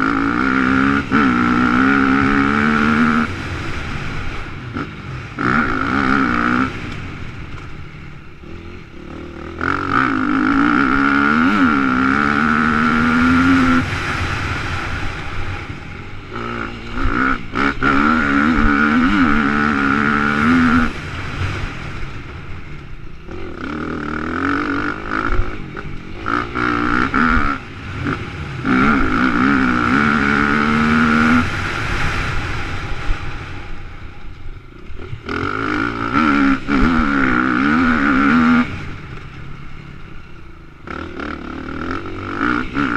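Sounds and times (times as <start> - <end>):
dirt bike engine revving: 0.0 - 42.9
wind rushing on microphone: 26.9 - 35.4.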